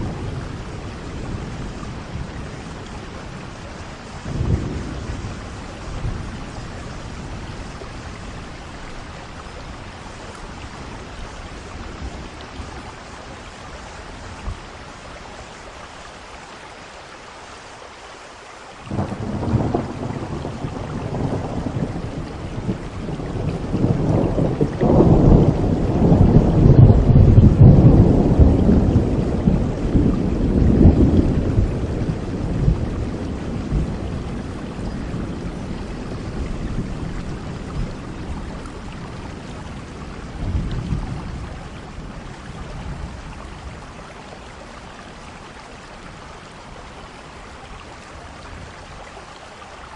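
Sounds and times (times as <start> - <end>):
rumble of thunder: 0.0 - 13.0, 18.9 - 45.6
steady rain falling: 0.0 - 49.9.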